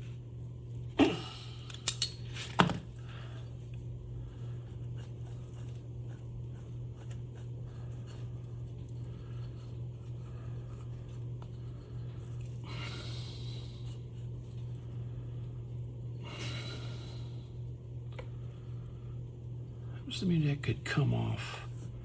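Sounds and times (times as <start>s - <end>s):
steady low hum: 0.0s - 22.0s
screwdriver scraping and clicking: 1.7s - 2.4s.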